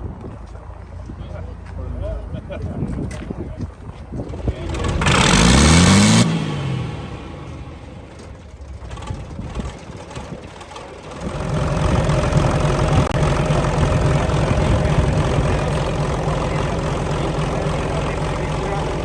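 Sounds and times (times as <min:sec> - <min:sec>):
car engine idling: 0:04.2 - 0:19.0.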